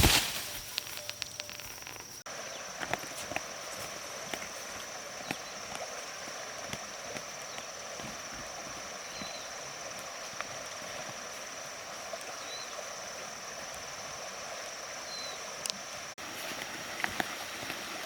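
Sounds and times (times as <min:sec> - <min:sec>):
faint chirps: 0:09.0 - 0:09.9.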